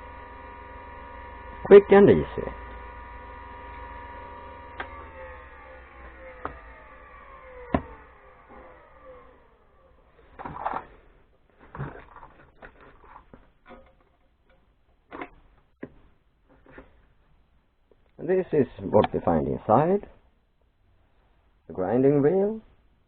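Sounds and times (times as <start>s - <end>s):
grinder motor winding down: 0.0s - 10.1s
machine being handled: 10.2s - 17.0s.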